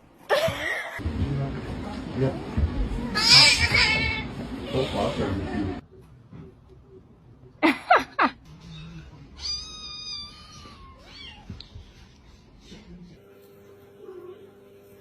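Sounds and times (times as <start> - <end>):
cat meowing: 9.4 - 11.6.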